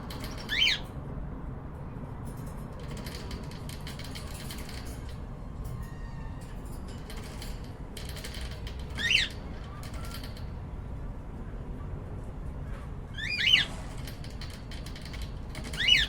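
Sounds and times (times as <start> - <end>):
birds scratching and clicking: 0.0 - 1.0, 2.2 - 10.8, 13.2 - 16.0
bird chirp: 15.6 - 16.0.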